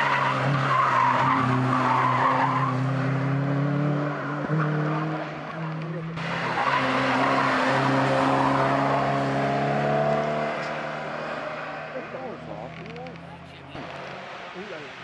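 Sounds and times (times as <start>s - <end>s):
car engine at full load: 0.0s - 15.0s
car accelerating hard past: 6.2s - 12.4s.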